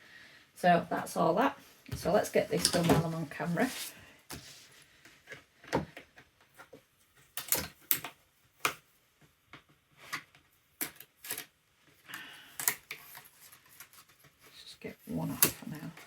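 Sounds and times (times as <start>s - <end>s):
short rustle: 2.1s - 4.8s.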